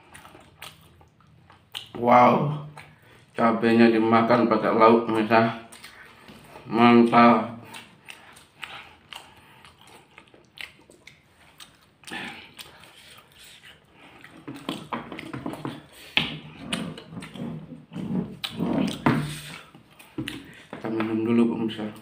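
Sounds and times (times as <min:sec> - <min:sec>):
lip smacks: 0:00.0 - 0:02.0, 0:05.2 - 0:06.4, 0:07.0 - 0:17.4, 0:18.4 - 0:20.9
chewing: 0:00.0 - 0:03.4, 0:05.0 - 0:21.0.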